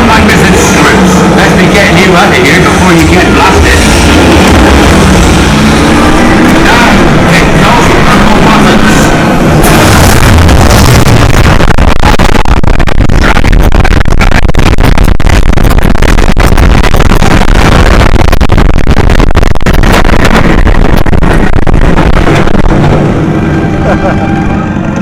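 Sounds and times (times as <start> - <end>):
roller coaster rumble and rattle: 0.0 - 13.4, 19.8 - 25.0.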